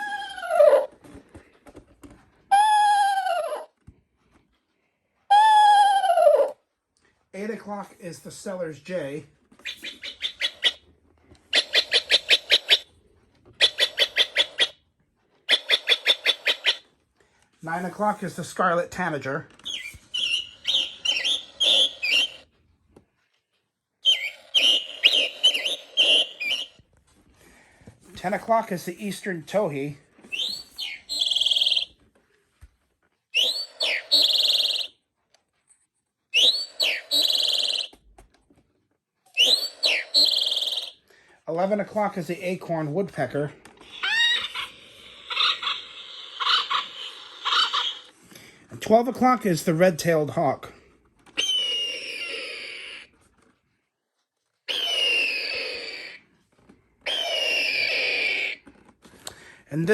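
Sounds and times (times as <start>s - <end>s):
recorded jay call: 9.6s - 10.8s, 11.5s - 12.9s, 13.6s - 14.8s, 15.5s - 16.8s, 19.7s - 22.4s, 24.0s - 26.8s, 30.3s - 31.9s, 33.4s - 34.9s, 36.4s - 37.9s, 39.4s - 41.0s, 43.9s - 48.1s, 51.4s - 53.1s, 54.7s - 56.2s, 57.1s - 58.6s
recorded birdsong from clock: 9.7s - 10.8s, 19.6s - 22.5s, 24.0s - 26.8s, 30.4s - 32.0s, 33.4s - 34.9s, 36.4s - 38.0s, 39.4s - 41.0s.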